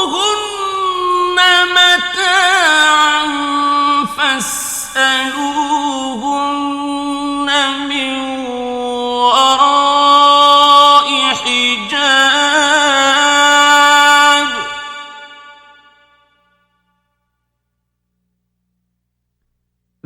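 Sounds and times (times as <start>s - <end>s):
man chanting melodically: 0.0s - 15.8s.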